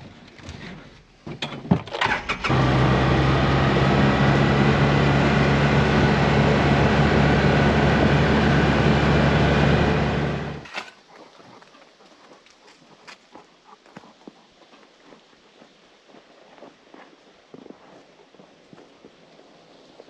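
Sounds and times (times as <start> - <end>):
engine running: 2.0 - 10.6.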